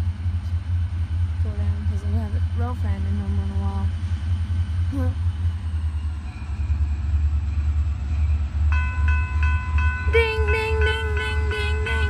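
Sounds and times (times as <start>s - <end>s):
diesel locomotive rumble: 0.0s - 12.0s
railroad bell ringing: 5.1s - 12.0s.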